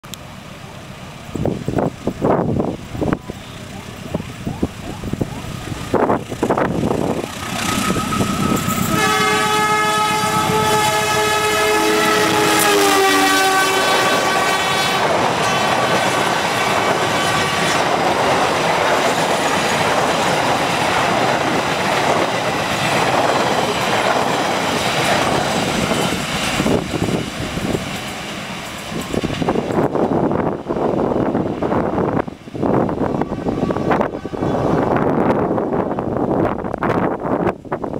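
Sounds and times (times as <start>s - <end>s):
train carriages rumbling on rails: 0.2s - 37.9s
locomotive horn: 7.6s - 16.0s, 17.0s - 17.8s, 33.1s - 35.3s.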